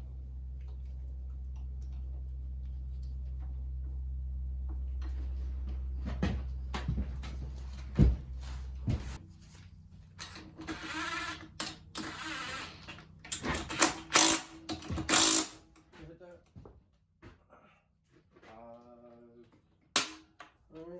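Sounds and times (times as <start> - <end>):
steady low hum: 0.0 - 16.6.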